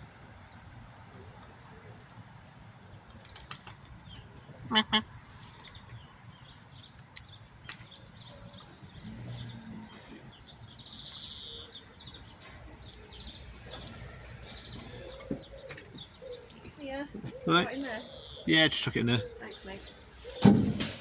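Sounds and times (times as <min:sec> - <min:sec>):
outdoor background noise: 0:00.0 - 0:21.0
birds chirping: 0:00.4 - 0:21.0
buzzy bird call: 0:17.4 - 0:21.0.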